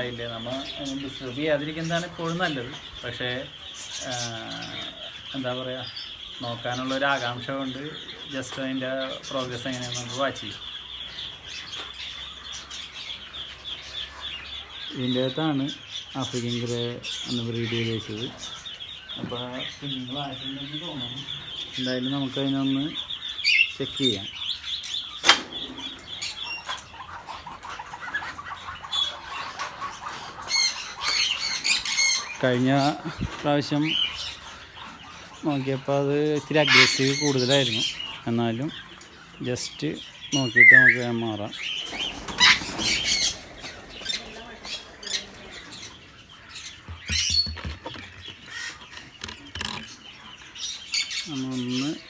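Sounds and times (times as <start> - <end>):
caged birds chirping: 0.0 - 52.0
parrot squawking harshly: 36.6 - 37.6.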